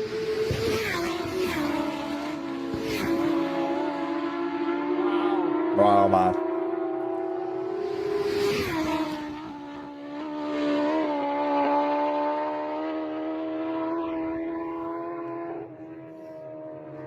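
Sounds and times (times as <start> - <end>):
racing motorcycle engine screaming: 4.7 - 10.2.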